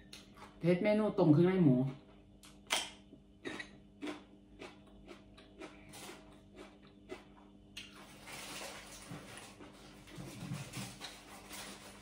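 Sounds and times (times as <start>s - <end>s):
crunchy chewing: 3.5s - 12.0s.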